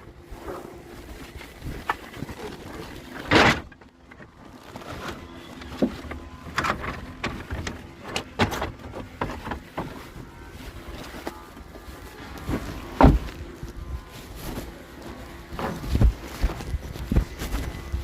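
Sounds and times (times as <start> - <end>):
wood knocking and clattering: 5.6 - 10.0, 13.0 - 13.3.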